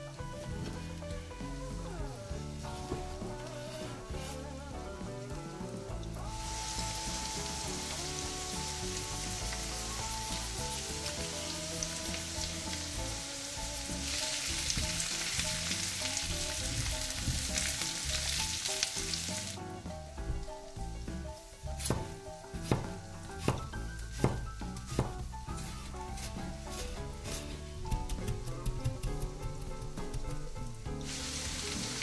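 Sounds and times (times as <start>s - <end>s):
vegetables sizzling in a pan: 6.0s - 19.7s, 31.0s - 32.0s
knife on wooden cutting board: 21.8s - 29.3s.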